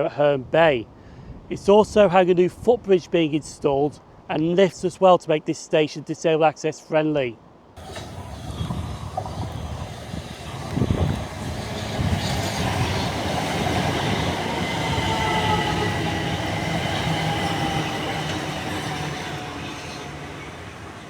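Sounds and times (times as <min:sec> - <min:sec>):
electric train running: 0:07.8 - 0:21.0
wheels squealing: 0:07.8 - 0:21.0.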